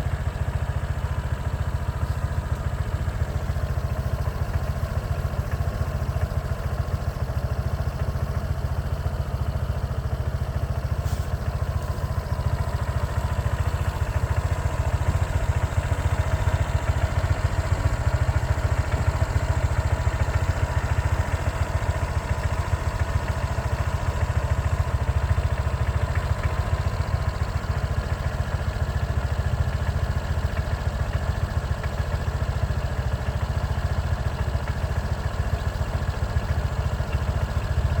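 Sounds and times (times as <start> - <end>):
vehicle engine and road rumble: 0.0 - 38.0.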